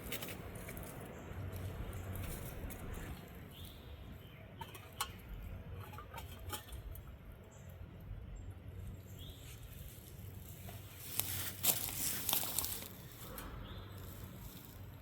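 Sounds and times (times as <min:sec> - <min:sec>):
camp gear clicks and rustles: 0:00.0 - 0:03.7, 0:04.6 - 0:07.1, 0:09.8 - 0:14.9
steady low rumble: 0:00.0 - 0:15.0.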